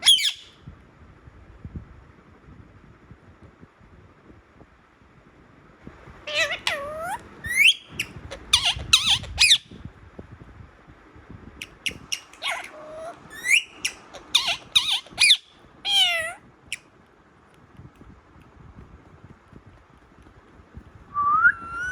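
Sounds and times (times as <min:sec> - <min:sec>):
parrot calling: 0:00.0 - 0:00.5, 0:06.3 - 0:09.7, 0:11.6 - 0:16.8, 0:21.6 - 0:21.9.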